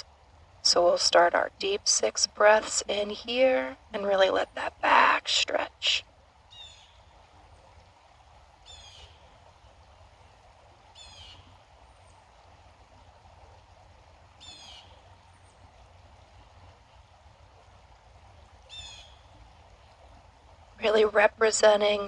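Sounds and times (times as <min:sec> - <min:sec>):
small brook rushing: 0:06.0 - 0:21.8
songbird singing: 0:06.5 - 0:07.2, 0:08.6 - 0:09.8, 0:10.9 - 0:12.2, 0:14.4 - 0:17.0, 0:18.6 - 0:19.9.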